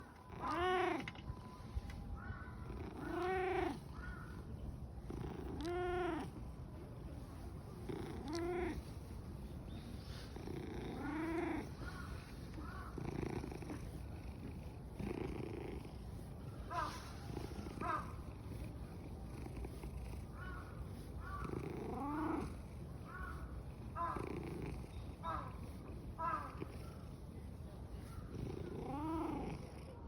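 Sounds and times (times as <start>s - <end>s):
cat purring: 0.2s - 30.0s
cat meowing: 2.6s - 4.0s.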